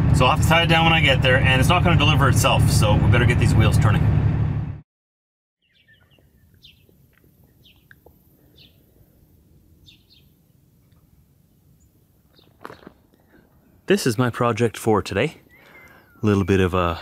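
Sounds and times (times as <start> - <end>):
low steady rumble: 0.0 - 4.8
small birds chirping: 5.6 - 17.0.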